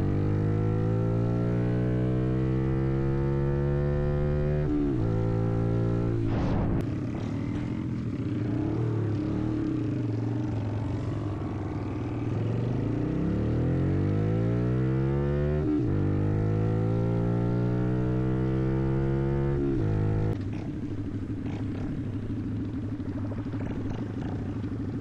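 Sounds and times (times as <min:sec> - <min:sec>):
minibike engine revving: 0:06.9 - 0:25.0.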